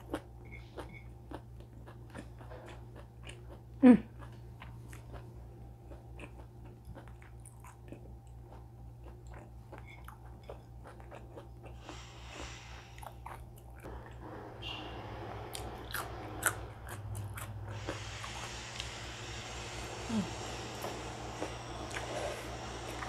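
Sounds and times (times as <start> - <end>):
person chewing food: 0.0 - 14.3, 15.5 - 19.0, 20.4 - 23.0
low hum: 0.0 - 23.0.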